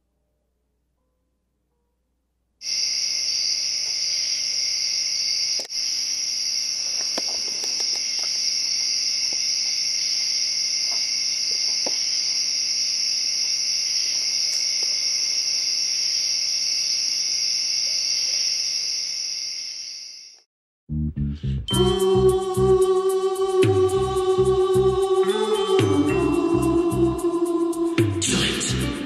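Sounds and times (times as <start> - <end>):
insect chorus drone: 2.6 - 20.4.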